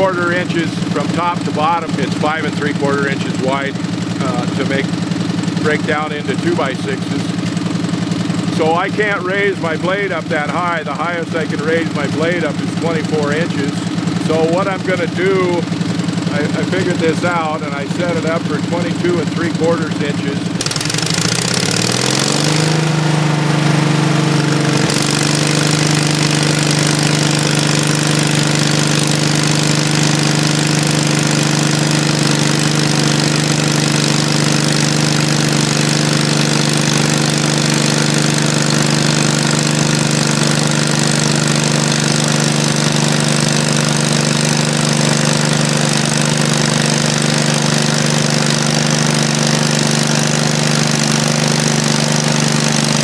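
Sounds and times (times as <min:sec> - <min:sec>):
small gasoline engine running: 0:00.0 - 0:53.0.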